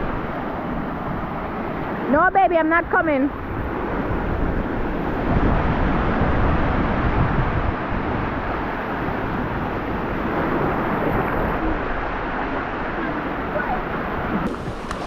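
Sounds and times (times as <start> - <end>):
waves breaking: 0.0 - 15.0
wind buffeting microphone: 0.0 - 15.0.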